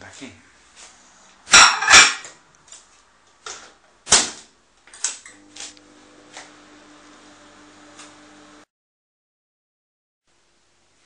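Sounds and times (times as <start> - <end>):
plate knocking and clattering: 1.5 - 2.3
microwave humming: 5.1 - 8.7.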